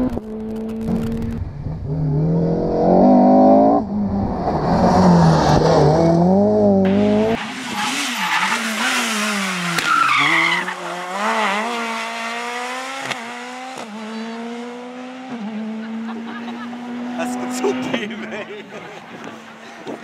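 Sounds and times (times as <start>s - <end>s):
rally car engine shifting gears: 0.0s - 18.2s
tyre squeal: 9.8s - 11.0s.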